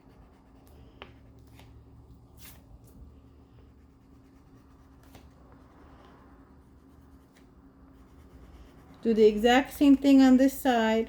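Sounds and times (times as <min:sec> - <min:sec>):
crayon scratching on paper: 0:00.0 - 0:01.8, 0:03.3 - 0:05.7, 0:06.6 - 0:10.2
low steady hum: 0:00.0 - 0:11.0.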